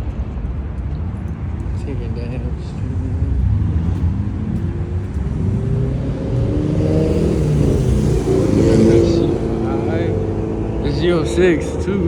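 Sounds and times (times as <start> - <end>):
car engine revving: 3.0 - 12.0.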